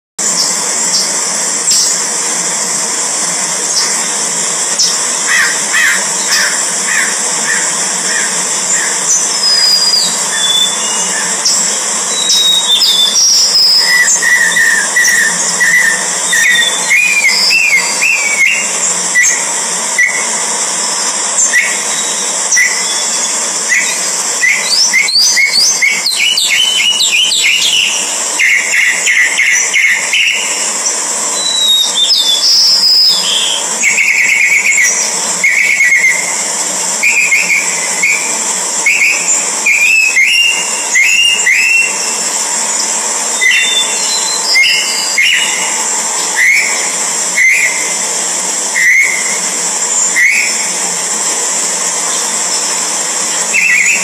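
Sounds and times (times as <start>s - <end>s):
descending whistled bird notes: 0.2s - 54.0s
steady high hiss: 0.2s - 54.0s
birds chirping: 0.3s - 51.0s, 51.8s - 54.0s.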